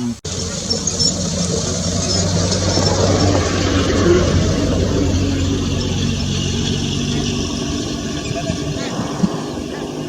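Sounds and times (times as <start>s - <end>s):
jeep engine running: 0.0s - 10.0s
road and wind noise hiss: 0.0s - 10.0s.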